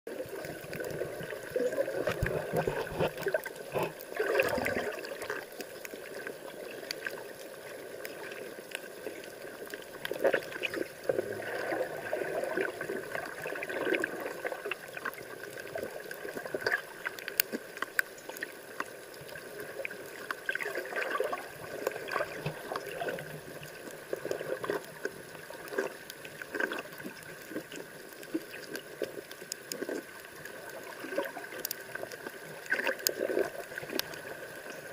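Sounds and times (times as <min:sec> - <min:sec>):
seawater sloshing and gurgling: 0:00.1 - 0:05.5, 0:09.9 - 0:17.1, 0:20.4 - 0:34.9
small clicks and splashes: 0:00.1 - 0:34.9.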